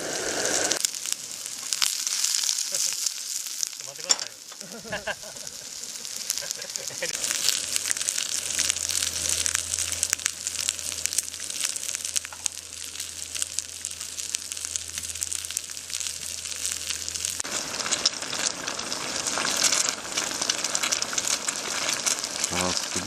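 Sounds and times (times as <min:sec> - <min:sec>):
food sizzling in a pan: 0:00.0 - 0:23.0
low hum: 0:07.0 - 0:20.8.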